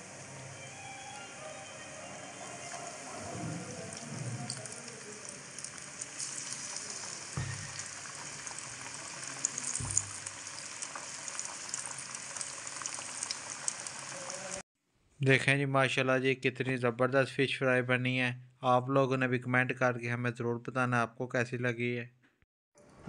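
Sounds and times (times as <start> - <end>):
fish deep-frying in oil: 2.6 - 14.6.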